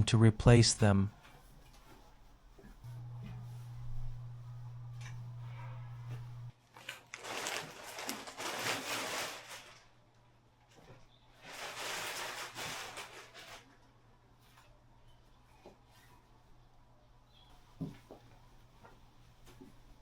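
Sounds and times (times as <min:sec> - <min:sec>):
fabric and packaging rustling: 0:05.0 - 0:14.8.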